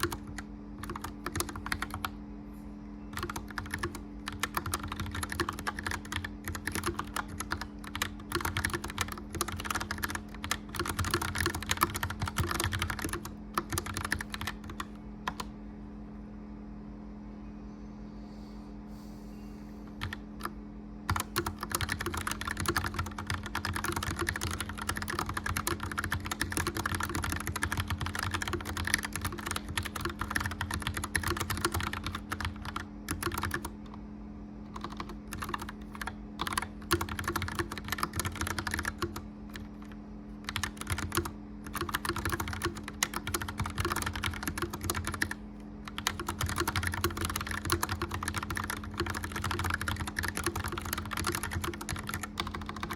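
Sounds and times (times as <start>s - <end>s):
typing on mechanical keyboard: 0.0s - 2.1s, 3.1s - 15.5s, 20.0s - 34.0s, 34.7s - 52.9s
blower fan humming: 0.0s - 52.9s.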